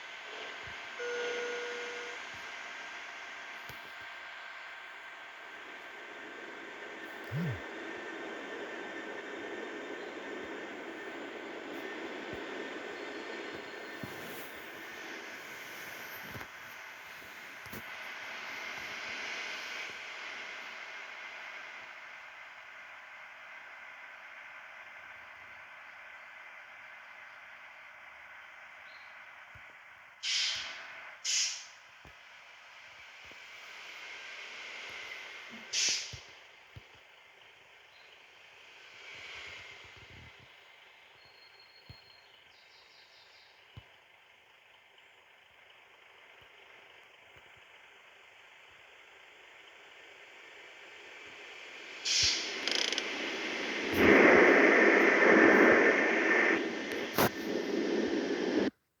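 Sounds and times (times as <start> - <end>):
bus engine low hiss: 0.0 - 58.8
compressed air hissing bursts: 30.2 - 31.8, 35.6 - 36.3, 51.9 - 58.7.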